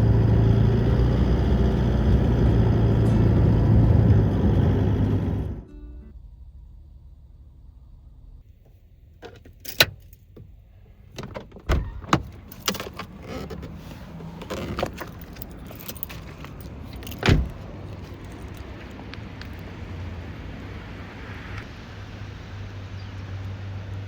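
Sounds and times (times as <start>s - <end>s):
keys and objects rattling: 9.2s - 10.3s, 11.2s - 19.6s.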